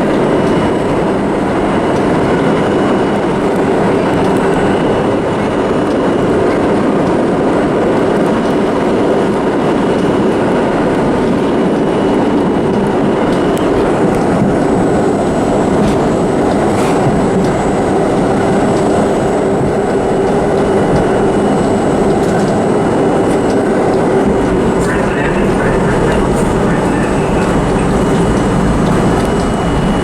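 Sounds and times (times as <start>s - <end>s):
subway train rumbling on rails: 0.0s - 30.0s
low steady hum: 11.0s - 30.0s.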